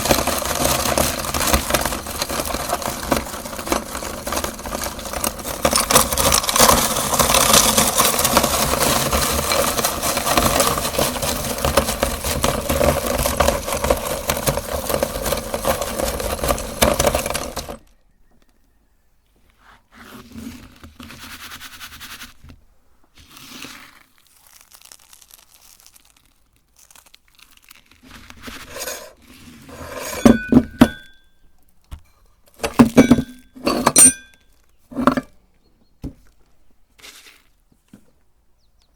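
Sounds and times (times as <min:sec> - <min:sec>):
sharp clinks and cracks: 0:00.0 - 0:17.8, 0:32.0 - 0:35.3
meat grinder crunching sweets: 0:00.0 - 0:17.9, 0:23.2 - 0:30.8.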